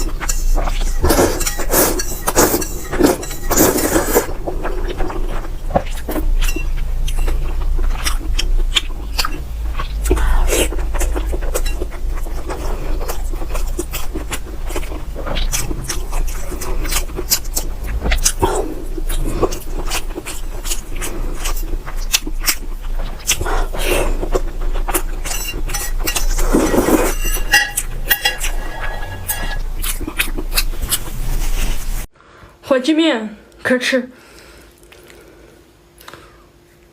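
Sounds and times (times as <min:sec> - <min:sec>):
utensils clinking on bowl: 0:00.0 - 0:04.3, 0:06.0 - 0:07.5, 0:25.0 - 0:30.0
wet chewing and slurping: 0:00.0 - 0:32.1.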